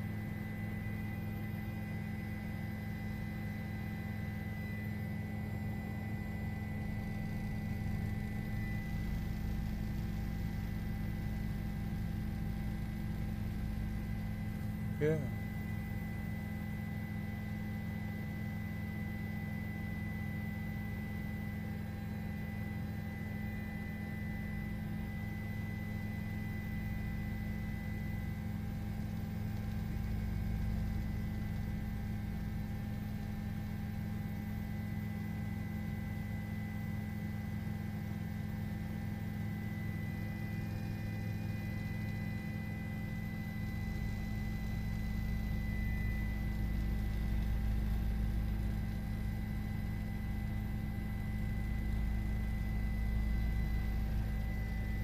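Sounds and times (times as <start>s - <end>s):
steady hum: 0.0s - 17.0s, 37.3s - 55.0s.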